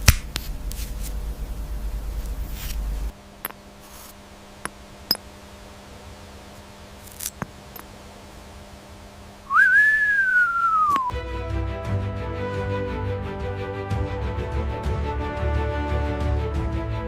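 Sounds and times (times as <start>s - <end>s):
low rumbling noise: 0.0s - 11.1s
loud falling whistle: 9.5s - 11.1s.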